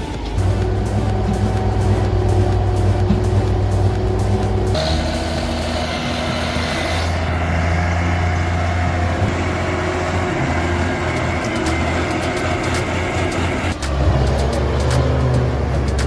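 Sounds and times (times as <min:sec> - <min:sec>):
heavy truck engine droning: 0:00.0 - 0:16.0.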